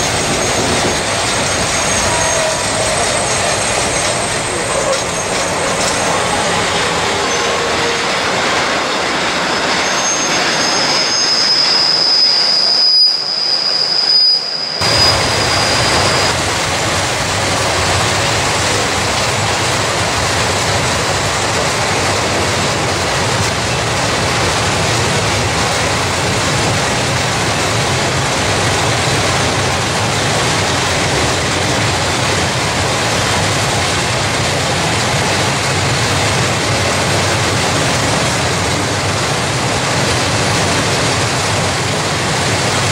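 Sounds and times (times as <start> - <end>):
wheels running on track: 0.0 - 14.2
high wheel squeal: 0.0 - 16.4.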